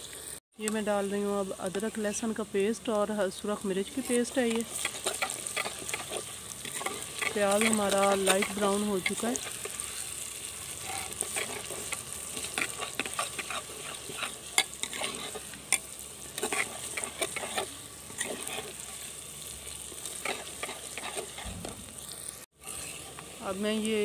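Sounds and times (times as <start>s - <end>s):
onions sizzling in ghee: 0.0s - 24.0s
spoon scraping a clay pot: 4.0s - 10.0s, 10.8s - 19.1s, 20.1s - 21.6s.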